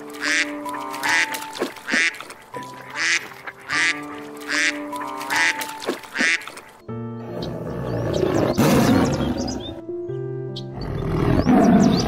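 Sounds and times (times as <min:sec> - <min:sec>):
background music: 0:00.0 - 0:12.0
duck quacking: 0:00.2 - 0:06.6.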